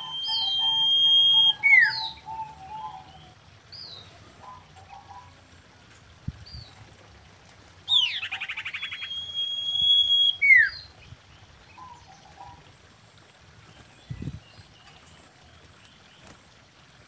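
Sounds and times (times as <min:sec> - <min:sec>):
bird calling trill and whistle: 0:00.0 - 0:03.4, 0:07.9 - 0:10.9.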